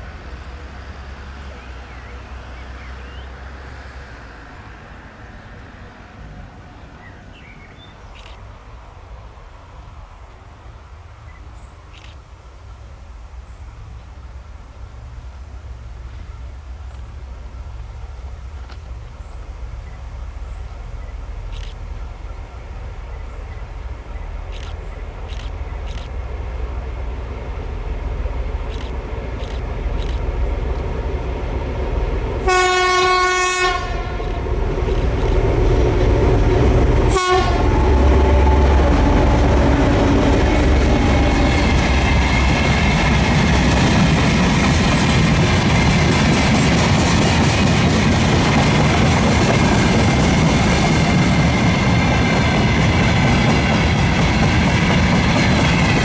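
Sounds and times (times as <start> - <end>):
diesel locomotive engine running: 14.8 - 56.0
locomotive horn: 32.4 - 42.4.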